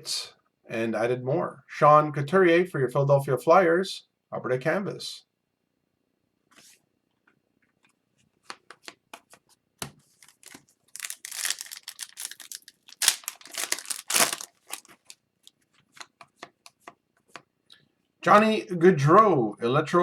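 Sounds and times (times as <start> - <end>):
card pack wrapper tearing: 10.2 - 15.2.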